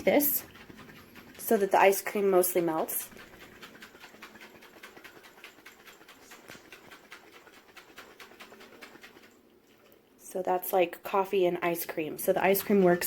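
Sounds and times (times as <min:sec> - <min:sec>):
liquid sloshing in shaken jar: 0:00.0 - 0:10.2, 0:10.8 - 0:13.0.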